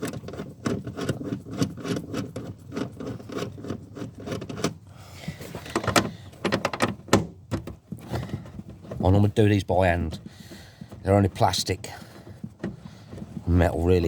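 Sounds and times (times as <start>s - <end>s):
socket wrench clicking and scraping: 0.0s - 4.8s, 5.4s - 8.9s.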